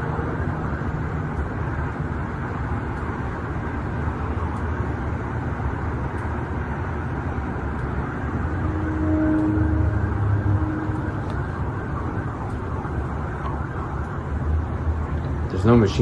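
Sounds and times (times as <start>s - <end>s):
low rumbling drone: 3.8s - 15.4s
faint hum tone: 8.0s - 11.8s.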